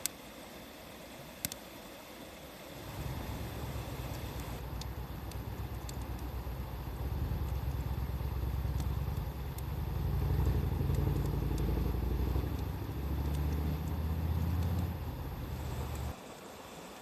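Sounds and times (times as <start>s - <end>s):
engine humming: 2.7s - 16.2s
wood fire crackling: 2.7s - 16.2s.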